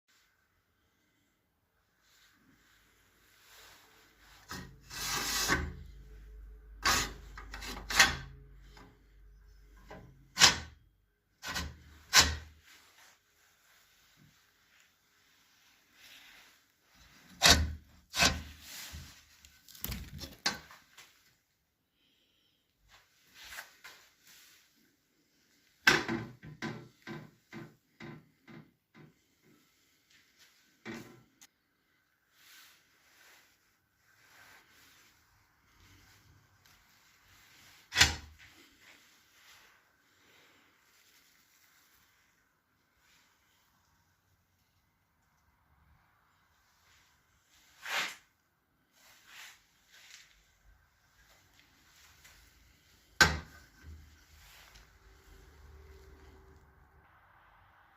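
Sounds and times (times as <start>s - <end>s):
stove door scraping: 4.5s - 5.8s, 6.8s - 8.3s, 17.1s - 19.2s.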